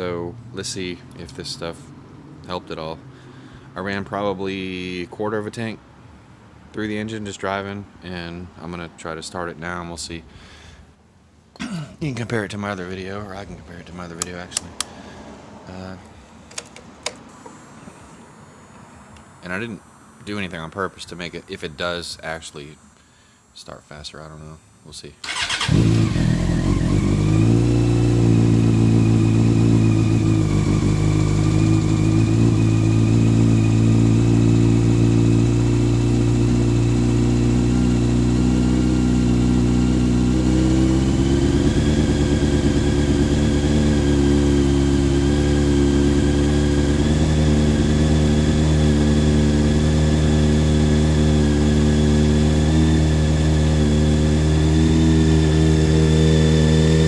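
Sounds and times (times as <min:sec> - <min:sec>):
motorcycle engine starting and idling: 0:13.9 - 0:15.2, 0:16.4 - 0:23.5, 0:25.2 - 0:57.0.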